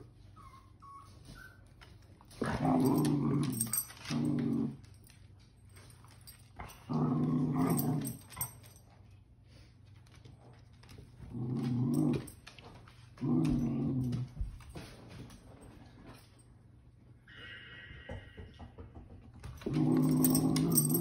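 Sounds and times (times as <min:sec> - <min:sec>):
dogs growling in play: 0:02.3 - 0:05.1, 0:06.6 - 0:08.8, 0:10.9 - 0:14.8, 0:19.5 - 0:21.0.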